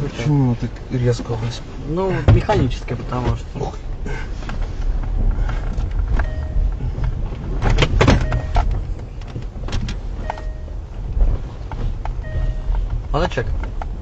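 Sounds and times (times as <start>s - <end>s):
engine and road rumble: 0.0s - 14.0s
faint two-tone electronic beep: 6.2s - 6.8s, 8.2s - 8.7s, 10.2s - 10.8s, 12.2s - 12.8s.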